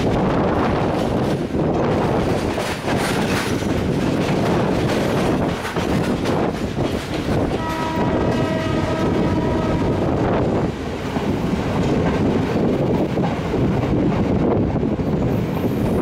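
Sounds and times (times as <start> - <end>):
diesel train rumbling on rails: 0.0 - 16.0
train horn: 7.5 - 10.2.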